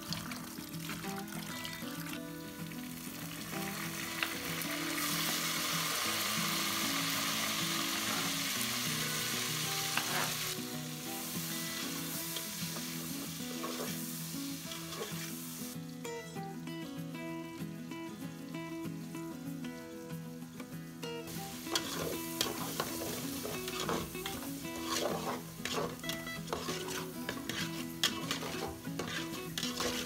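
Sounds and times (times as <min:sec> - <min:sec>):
background music: 0:00.0 - 0:30.0
onions sizzling in oil: 0:00.0 - 0:30.0
metal spatula scraping pot: 0:14.7 - 0:15.3, 0:21.7 - 0:30.0.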